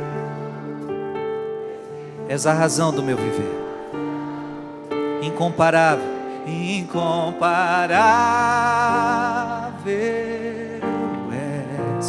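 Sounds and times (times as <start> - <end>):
person singing with vibrato: 0.0 - 12.0
sustained keyboard chords: 0.0 - 12.0.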